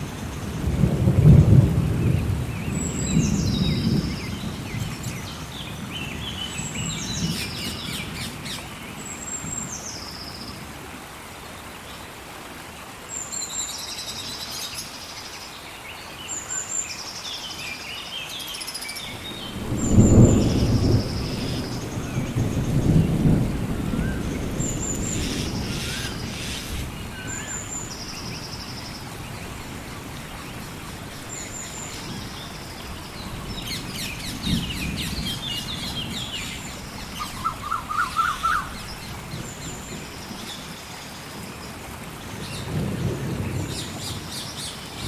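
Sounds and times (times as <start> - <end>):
thunder rumbling: 0.0 - 7.6, 19.1 - 28.4, 29.0 - 40.5
heavy rain: 0.0 - 45.0
bird high descending call: 37.2 - 38.8
bird chirps: 37.2 - 39.0.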